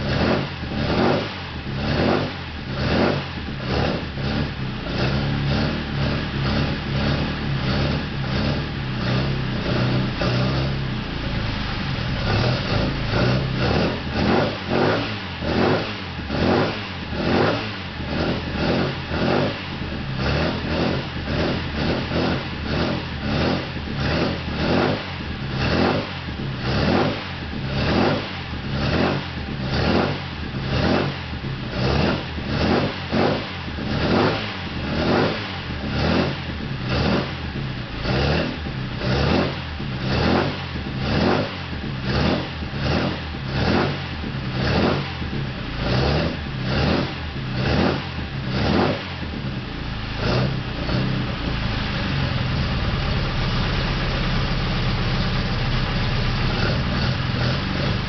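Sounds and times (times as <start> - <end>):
four-cylinder engine revving: 0.0 - 58.0.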